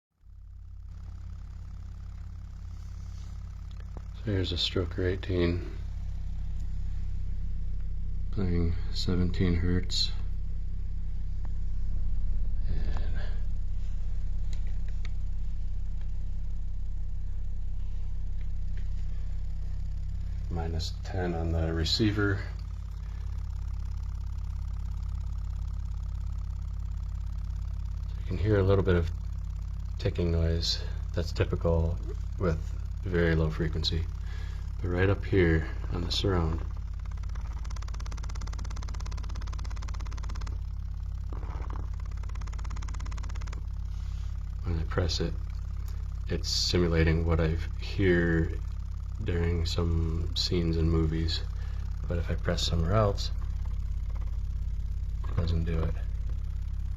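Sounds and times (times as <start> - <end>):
subwoofer deep drone: 0.1 - 56.9
fast even ticking: 18.4 - 56.9
faint ticks: 36.6 - 44.5.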